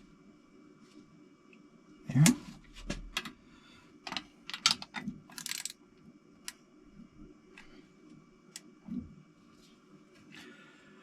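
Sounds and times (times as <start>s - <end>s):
wrench clicking on bolts: 4.5s - 5.8s.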